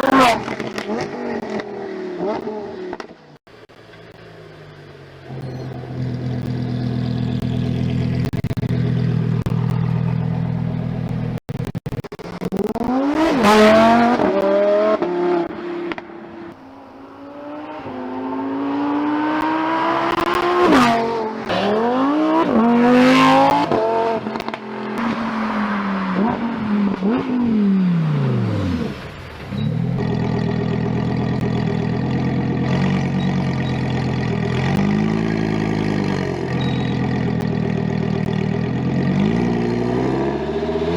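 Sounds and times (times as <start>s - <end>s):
sports car engine revving: 4.1s - 11.4s, 12.5s - 40.9s.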